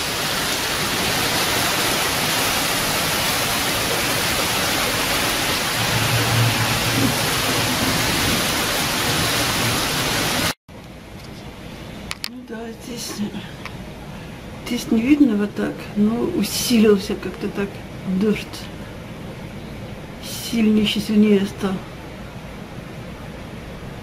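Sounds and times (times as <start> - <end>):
heavy rain pouring: 0.0 - 10.6
low rumble: 5.6 - 8.6.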